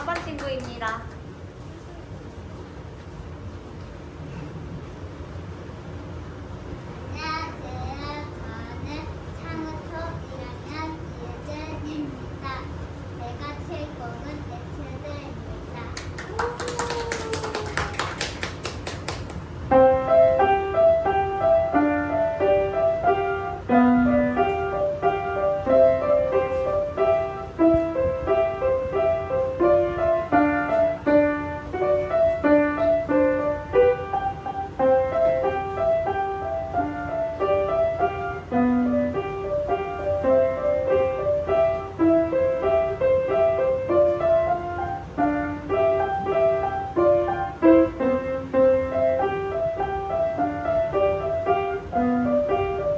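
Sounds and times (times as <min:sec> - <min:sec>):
piano playing running notes: 0:16.0 - 0:52.9.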